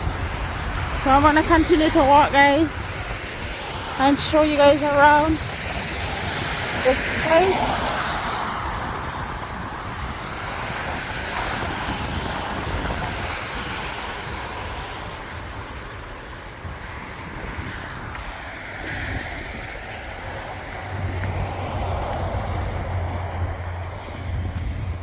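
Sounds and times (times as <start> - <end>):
road traffic passing: 0.0 - 25.0
wind buffeting the microphone: 0.0 - 25.0
low engine hum: 19.2 - 25.0.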